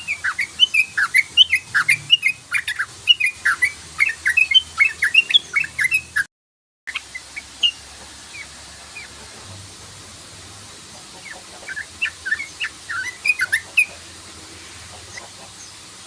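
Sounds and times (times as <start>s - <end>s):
steady hiss: 0.0s - 6.0s, 6.9s - 16.0s
bird chirping: 0.0s - 6.3s, 6.9s - 9.2s, 11.2s - 14.1s.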